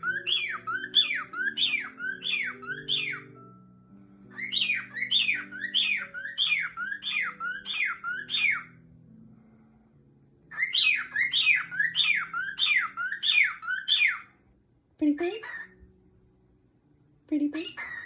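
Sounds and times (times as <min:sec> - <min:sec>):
cockatiel whistling: 0:00.0 - 0:03.4, 0:04.3 - 0:08.8, 0:10.5 - 0:14.3
soft music with low notes: 0:00.0 - 0:18.0.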